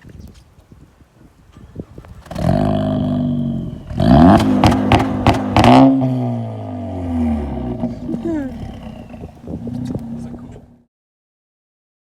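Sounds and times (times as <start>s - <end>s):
car exhaust revving with cracks: 2.2s - 10.9s.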